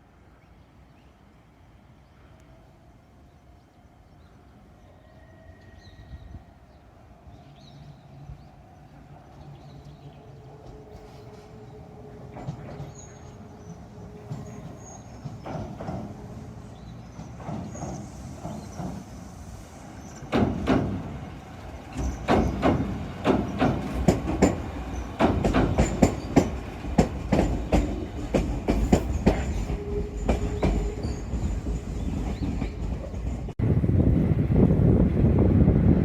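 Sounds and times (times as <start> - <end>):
train wheels clacking over rail joints: 14.3 - 16.2, 17.1 - 19.1, 20.2 - 21.2, 21.8 - 33.6.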